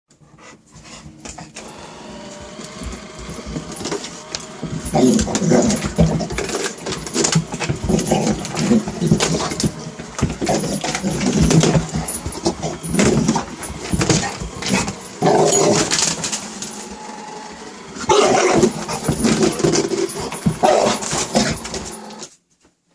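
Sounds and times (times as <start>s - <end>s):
dog whining: 4.6s - 16.4s, 18.0s - 22.2s.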